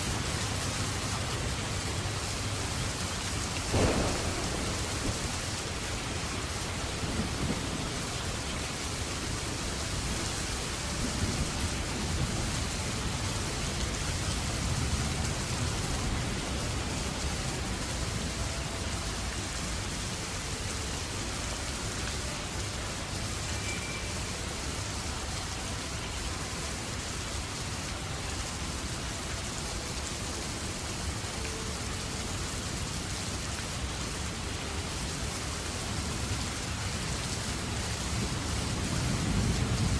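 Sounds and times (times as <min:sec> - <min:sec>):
heavy rain falling: 0:00.0 - 0:39.9
thunder rumbling: 0:03.6 - 0:09.0.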